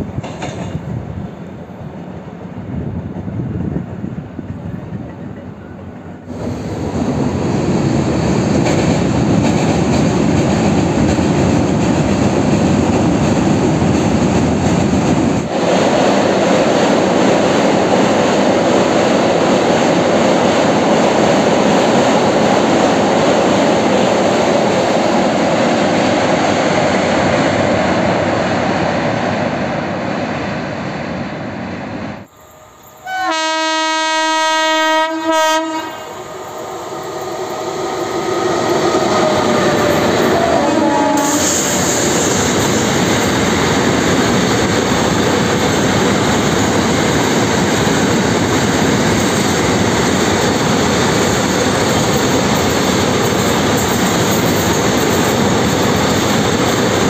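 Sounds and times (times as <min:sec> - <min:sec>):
train wheels rumbling on bridge: 0:00.0 - 0:31.2, 0:32.8 - 0:57.0
locomotive horn blast: 0:33.0 - 0:36.3, 0:40.2 - 0:41.6.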